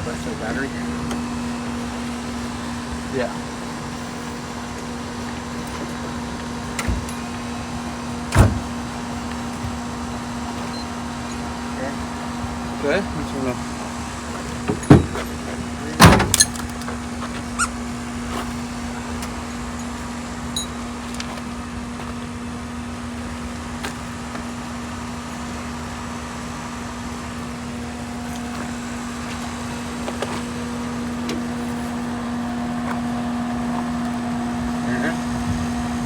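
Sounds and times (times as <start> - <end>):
electric fuel pumps humming: 0.0 - 36.0.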